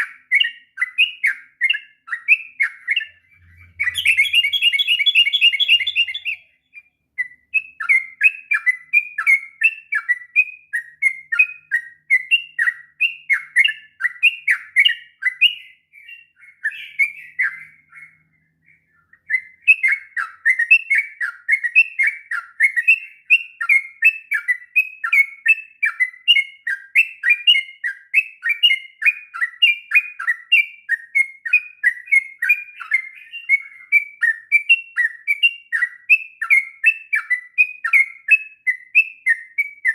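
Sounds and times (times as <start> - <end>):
bulbul singing rapid chirps: 0.0 - 23.1.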